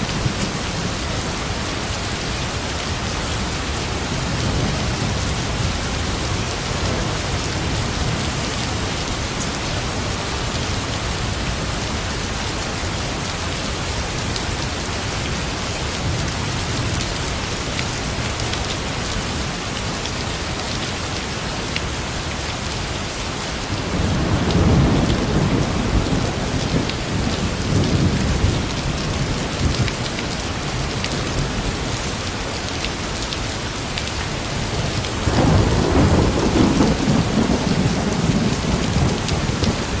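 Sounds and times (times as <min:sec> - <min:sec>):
heavy rain falling: 0:00.0 - 0:40.0
thunder rumbling: 0:35.2 - 0:40.0.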